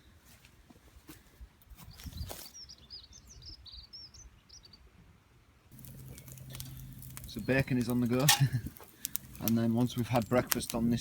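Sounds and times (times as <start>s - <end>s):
small songbird chirping: 1.9s - 4.9s.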